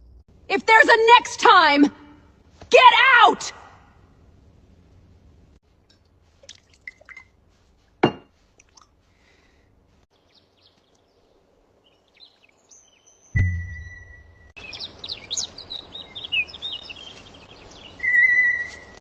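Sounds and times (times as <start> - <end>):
low hum: 0.0 - 0.5, 13.4 - 14.6
faint bird chirps: 10.2 - 19.0.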